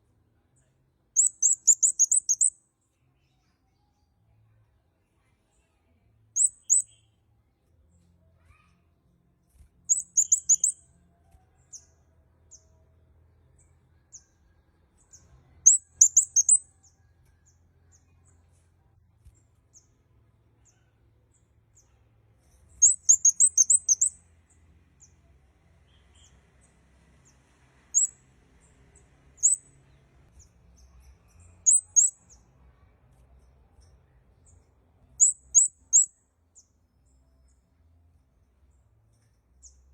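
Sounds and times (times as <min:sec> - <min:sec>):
finch chirping: 0:01.2 - 0:02.5, 0:06.4 - 0:07.0, 0:09.9 - 0:10.8, 0:15.6 - 0:16.6, 0:22.8 - 0:24.1, 0:27.9 - 0:28.2, 0:29.4 - 0:29.6, 0:31.3 - 0:32.2, 0:35.2 - 0:36.1.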